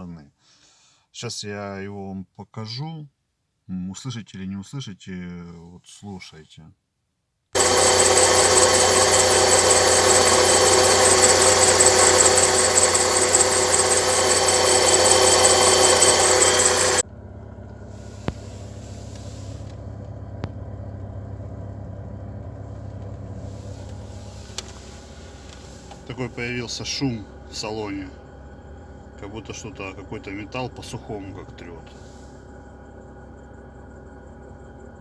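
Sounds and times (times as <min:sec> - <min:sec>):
car engine running: 0:07.6 - 0:35.0.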